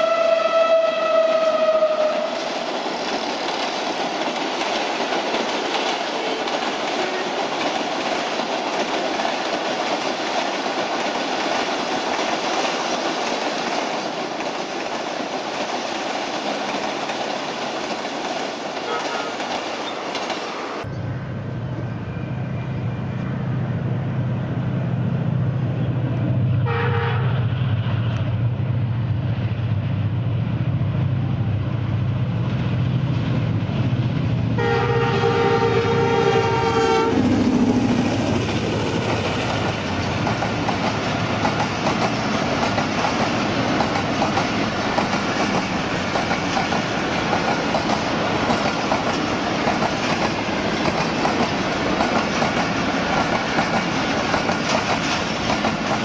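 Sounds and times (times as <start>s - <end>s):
locomotive horn: 0.0s - 2.5s, 18.8s - 19.5s, 26.6s - 27.5s, 34.6s - 37.3s
train wheels rolling on rails: 0.0s - 26.6s, 27.4s - 56.0s.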